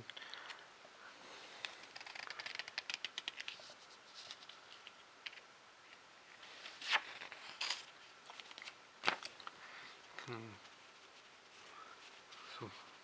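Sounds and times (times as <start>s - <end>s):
pages crackling clicks: 1.6s - 3.6s, 6.8s - 9.6s
page-turn rustles: 1.6s - 5.4s, 6.4s - 9.4s.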